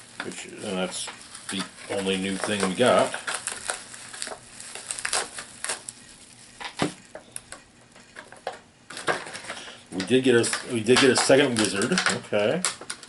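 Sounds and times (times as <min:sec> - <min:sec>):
packaging crinkling: 0:00.0 - 0:13.0
plastic pieces clicking: 0:06.6 - 0:13.0.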